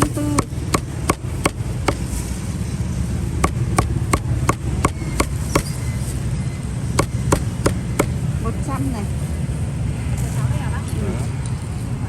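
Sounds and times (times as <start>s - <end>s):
cleaver chopping meat on board: 0.0s - 2.1s, 3.4s - 5.8s, 7.0s - 8.2s.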